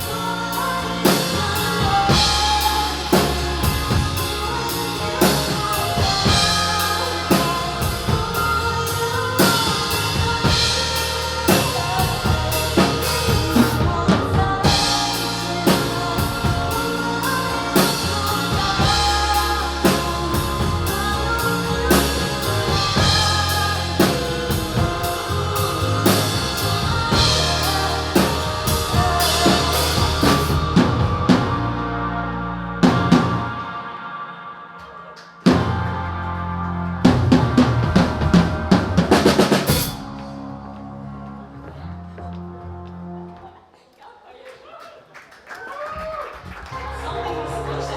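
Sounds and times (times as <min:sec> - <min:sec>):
bass drum and snare beat: 0:00.0 - 0:31.8
band music: 0:00.0 - 0:43.7, 0:46.5 - 0:47.9.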